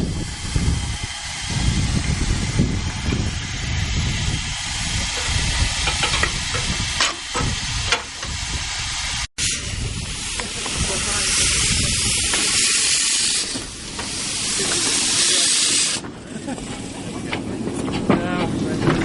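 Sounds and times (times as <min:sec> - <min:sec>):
low rumble: 0:00.0 - 0:14.6
steam locomotive hissing: 0:00.0 - 0:19.0.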